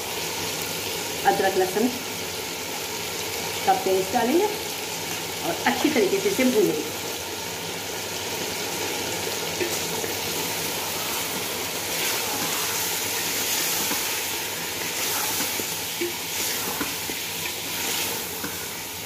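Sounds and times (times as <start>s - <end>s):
food sizzling in hot oil: 0.0s - 19.0s
spatula scraping metal pot: 10.8s - 18.8s.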